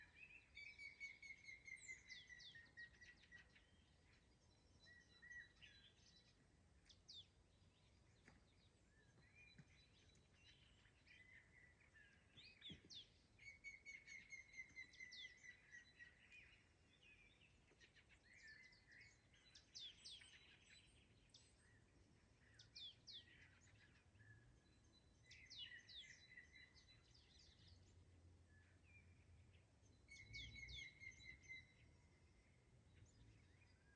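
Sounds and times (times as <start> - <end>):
faint songbirds singing: 0.0 - 33.9.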